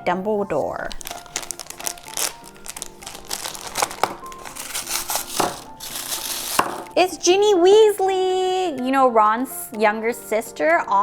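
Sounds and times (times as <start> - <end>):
soft background music: 0.0 - 11.0
plastic package crinkling and tearing: 0.9 - 7.0.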